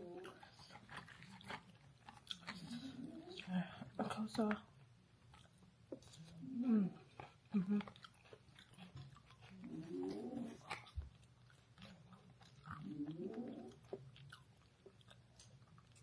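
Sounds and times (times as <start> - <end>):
wet chewing clicks: 0.0 - 4.6, 5.2 - 16.0.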